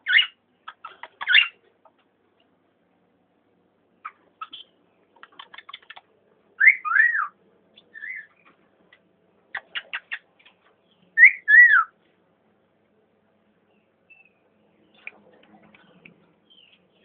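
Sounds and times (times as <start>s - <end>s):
soft clicks and chirps: 4.1s - 6.1s, 14.1s - 17.0s.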